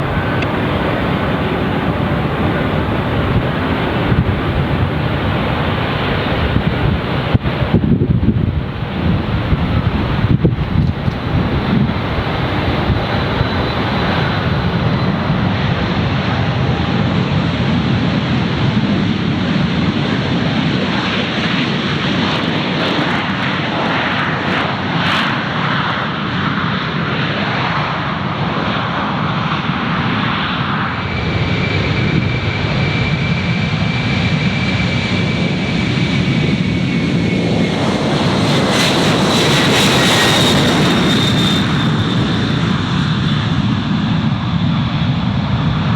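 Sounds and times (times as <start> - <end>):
falling whine: 0.0 - 7.8, 37.1 - 44.0
high turbine whine: 0.0 - 18.4, 30.0 - 44.6
jet engines roaring: 0.0 - 45.9.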